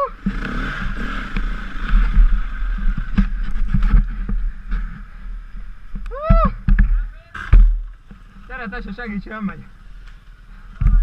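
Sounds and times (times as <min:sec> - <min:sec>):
dirt bike engine running: 0:00.0 - 0:07.9.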